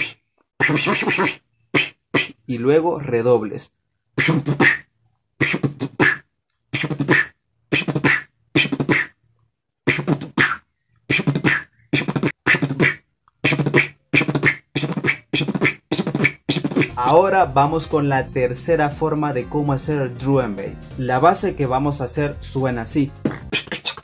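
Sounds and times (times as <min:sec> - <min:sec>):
beatboxed snare rolls: 0:00.0 - 0:02.4, 0:04.2 - 0:04.8, 0:05.4 - 0:06.2, 0:06.8 - 0:09.2, 0:09.9 - 0:24.0.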